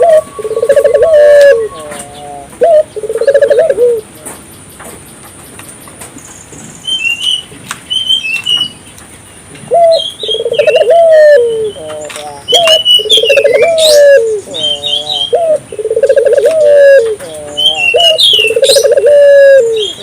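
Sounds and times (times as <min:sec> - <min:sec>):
dove cooing: 0:00.0 - 0:04.1, 0:09.7 - 0:20.0
small bird high chirps: 0:12.5 - 0:15.4.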